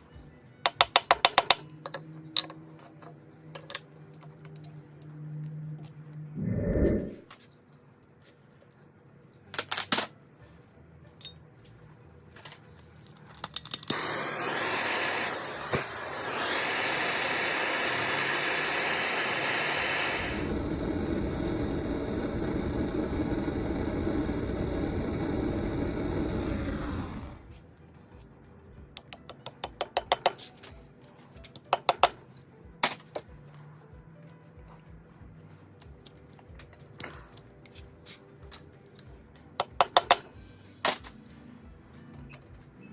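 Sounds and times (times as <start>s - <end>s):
electric drill boring metal: 13.9s - 27.5s
metallic clicks and taps: 29.0s - 30.4s.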